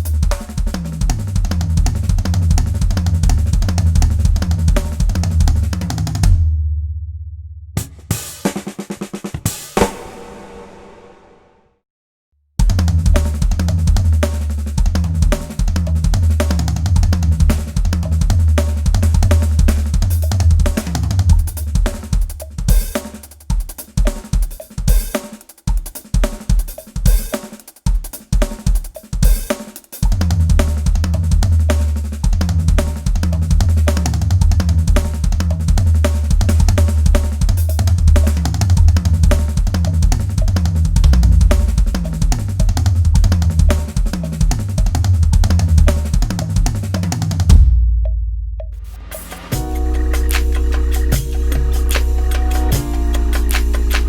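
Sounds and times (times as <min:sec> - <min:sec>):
backing track with bass line: 0:00.0 - 0:06.4, 0:12.6 - 0:23.0, 0:30.1 - 0:54.0
drum kit playing fast chops: 0:00.0 - 0:06.4, 0:07.8 - 0:11.4, 0:12.6 - 0:47.9, 0:48.6 - 0:54.0.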